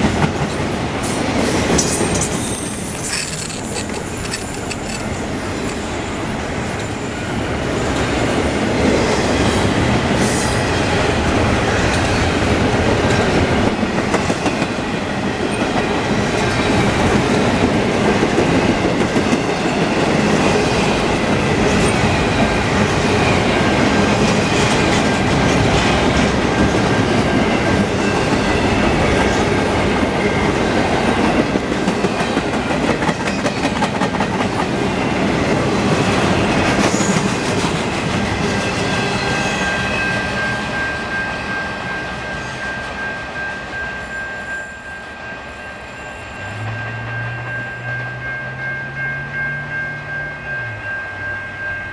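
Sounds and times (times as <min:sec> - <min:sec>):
thin wheel squeal: 0:43.4 - 0:48.2.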